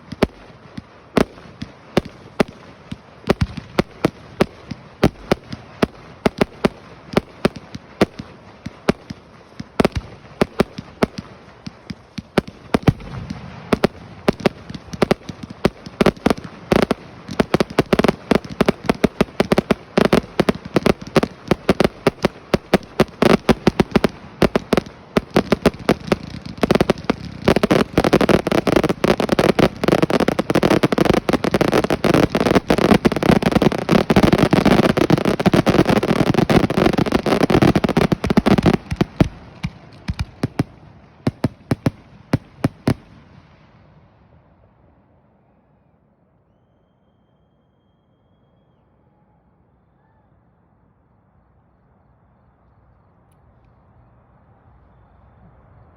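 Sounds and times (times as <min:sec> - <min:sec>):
fireworks popping and crackling: 0:00.0 - 0:43.9.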